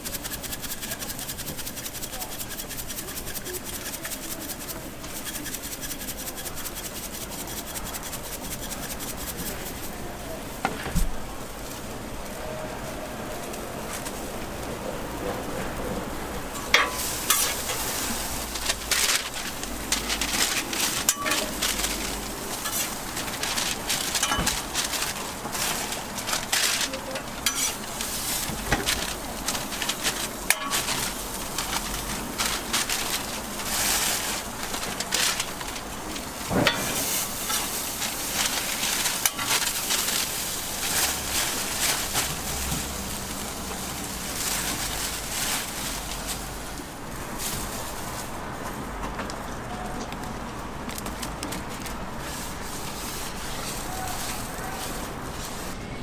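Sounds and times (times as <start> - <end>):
metal spatula scraping griddle: 0.0 - 10.0, 16.6 - 42.7
food sizzling on griddle: 36.6 - 41.8.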